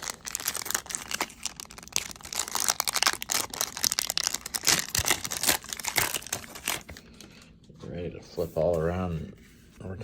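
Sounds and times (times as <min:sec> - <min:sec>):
wrapper crinkling and tearing: 0:00.0 - 0:07.1.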